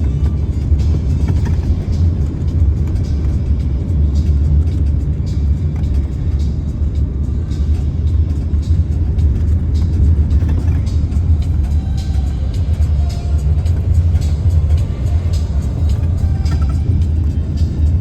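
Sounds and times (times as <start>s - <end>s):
music playing: 0.0s - 18.0s
road rumble inside car: 0.0s - 18.0s.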